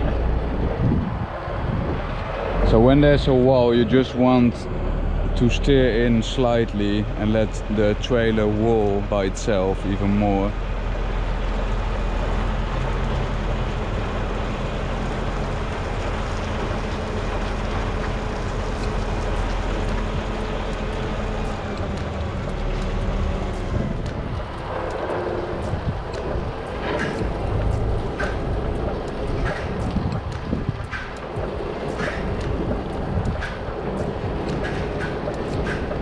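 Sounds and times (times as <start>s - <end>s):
truck diesel engine rumbling: 0.0s - 36.0s.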